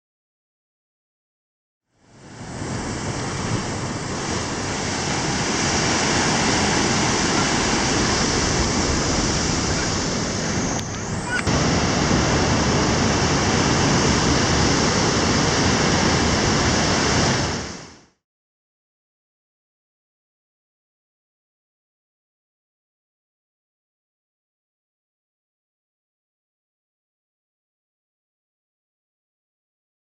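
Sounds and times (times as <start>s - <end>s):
rough surf: 2.0s - 18.2s
wind buffeting microphone: 2.3s - 17.8s.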